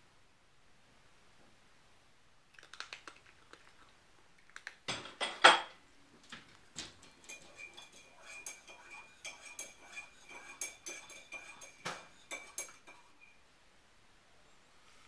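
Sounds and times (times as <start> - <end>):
dishes clattering: 4.9 - 5.8, 6.8 - 13.3.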